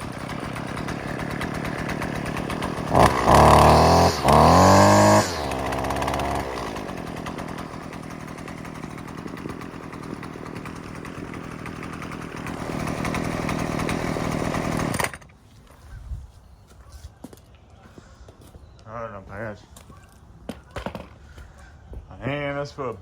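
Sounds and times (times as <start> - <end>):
string trimmer engine revving and idling: 0.0 - 15.4.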